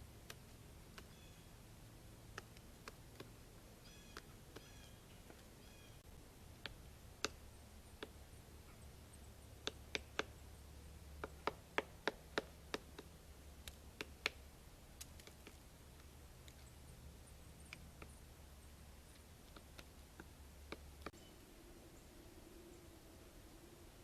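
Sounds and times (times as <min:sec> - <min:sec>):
faint steady hum: 0:00.0 - 0:24.0
woodpecker pecking on tree: 0:00.1 - 0:21.2
bird call: 0:01.0 - 0:01.5, 0:03.8 - 0:06.0.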